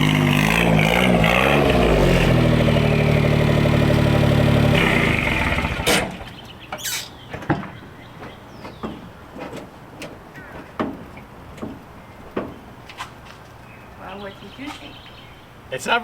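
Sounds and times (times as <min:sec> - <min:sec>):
small truck engine idling: 0:00.0 - 0:06.7.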